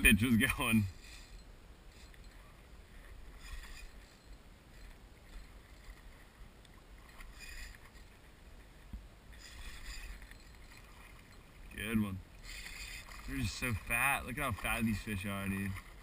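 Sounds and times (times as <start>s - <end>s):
water splashing: 2.0s - 16.0s.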